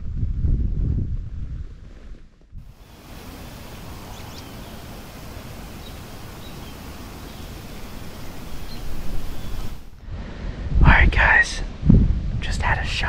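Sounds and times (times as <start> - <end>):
wind rustling through trees: 1.4 - 13.0
faint bird chirps: 3.4 - 9.9.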